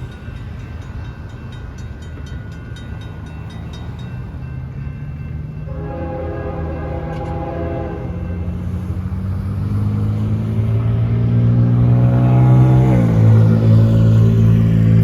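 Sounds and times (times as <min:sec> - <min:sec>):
locomotives rumbling past: 0:00.0 - 0:15.0
locomotive horn chord: 0:05.7 - 0:08.5.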